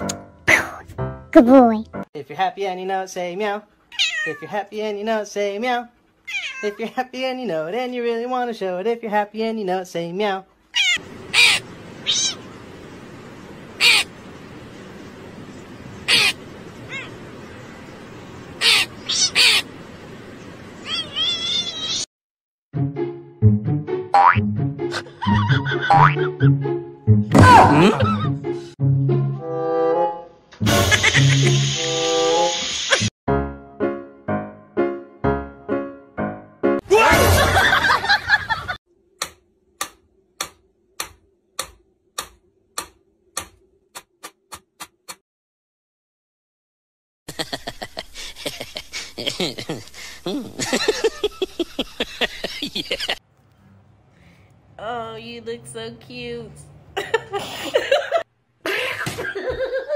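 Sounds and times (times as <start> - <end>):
higher wavering crow calls: 10.7 - 12.6, 13.8 - 14.2, 16.0 - 17.2, 18.6 - 19.7
crow cawing: 10.8 - 12.4, 13.8 - 14.1, 16.1 - 16.4, 18.6 - 19.6.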